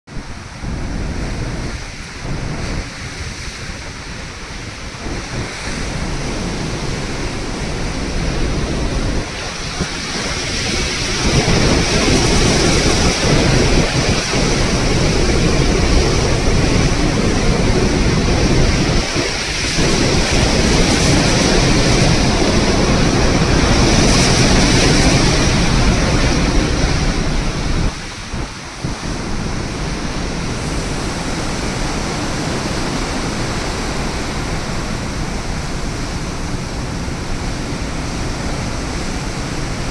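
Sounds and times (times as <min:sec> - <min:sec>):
sea rushing: 0:00.1 - 0:39.9
wind buffeting microphone: 0:00.1 - 0:39.9.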